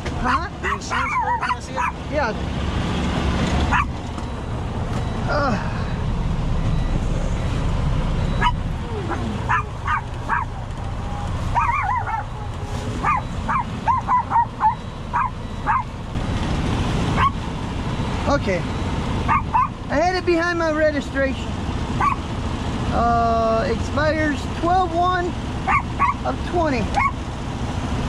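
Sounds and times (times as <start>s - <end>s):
small dog yipping and barking: 0.6s - 2.0s, 3.7s - 3.9s, 8.3s - 10.7s, 11.5s - 15.9s, 17.2s - 17.4s, 19.3s - 19.8s, 22.0s - 22.2s, 25.6s - 26.3s, 27.0s - 27.2s
steady low rumble: 3.7s - 20.9s.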